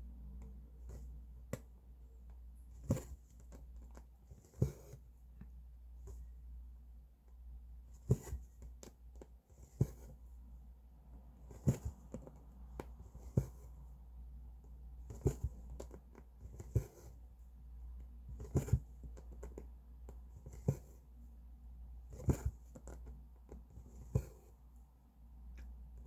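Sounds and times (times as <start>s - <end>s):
needle tapping through fabric: 0.4s - 6.3s, 7.9s - 10.2s, 11.4s - 13.8s, 14.6s - 17.2s, 17.9s - 21.1s, 22.1s - 24.5s.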